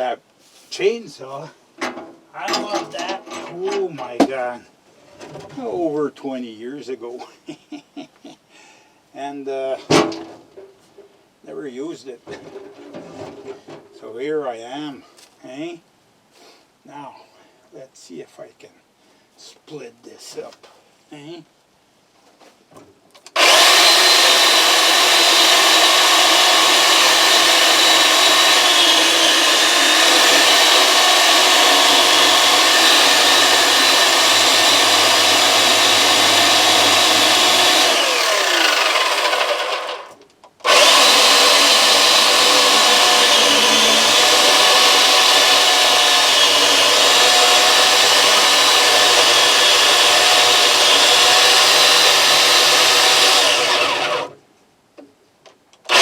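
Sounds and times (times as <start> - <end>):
electric chainsaw cutting wood: 23.4 - 54.4.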